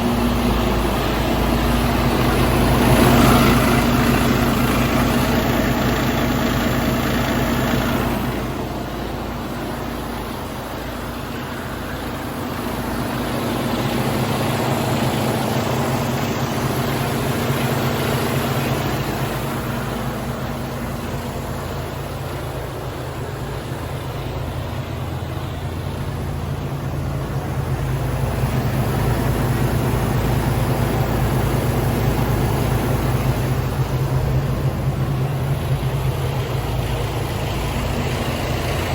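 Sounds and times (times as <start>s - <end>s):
diesel truck engine idling: 0.0s - 38.9s.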